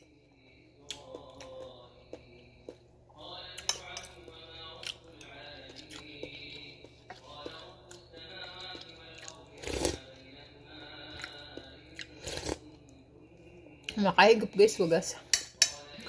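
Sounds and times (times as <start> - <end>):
faint background music: 0.0 - 16.0
person chewing food: 0.8 - 14.0.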